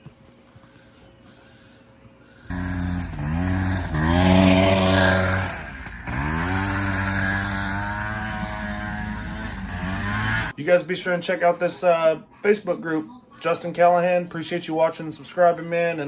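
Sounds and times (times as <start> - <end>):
off-road vehicle engine revving: 2.5 - 10.6.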